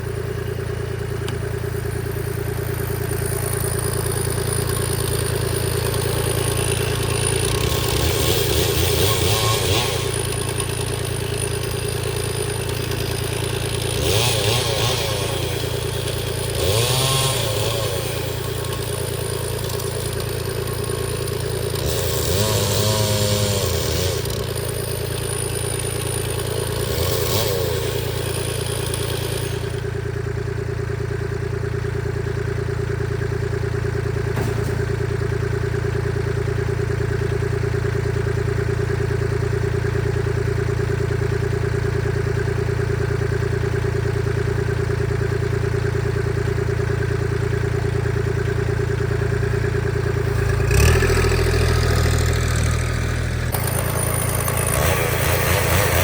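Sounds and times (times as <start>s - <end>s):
chainsaw cutting logs: 1.0s - 30.2s, 34.2s - 35.3s, 49.8s - 56.0s.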